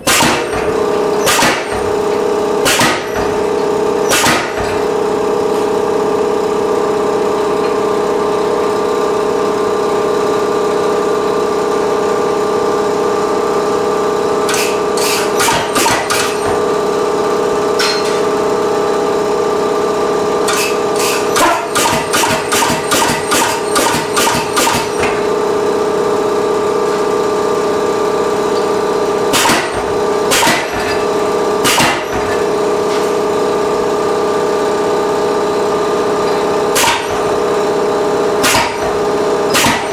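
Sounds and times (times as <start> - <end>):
power hammer blows on hot steel: 0.0 - 1.9, 2.6 - 3.4, 4.0 - 4.7, 20.5 - 25.2, 29.3 - 31.0, 31.6 - 32.4, 36.7 - 37.2, 38.4 - 39.9.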